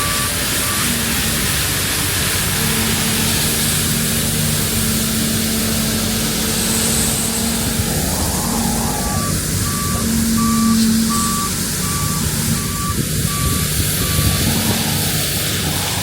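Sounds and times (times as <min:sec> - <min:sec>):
reversing alarm beeps: 0:00.0 - 0:01.6, 0:07.0 - 0:16.0
heavy engine running: 0:00.0 - 0:16.0.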